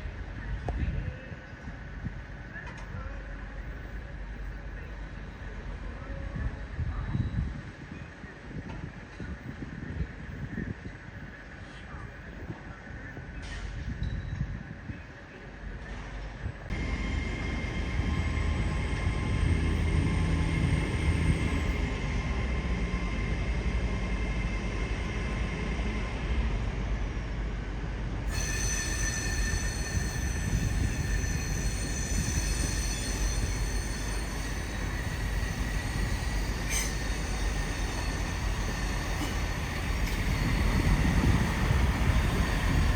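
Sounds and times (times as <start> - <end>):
train rumbling: 0.0 - 42.9
steel wheels squealing: 28.3 - 42.9.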